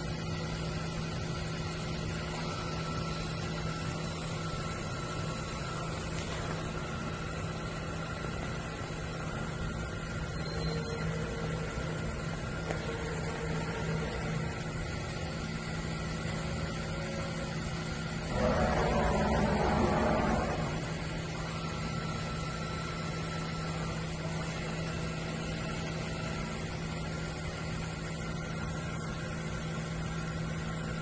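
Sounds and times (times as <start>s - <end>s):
machining centre humming: 0.0s - 29.1s
rushing noise: 18.3s - 21.3s.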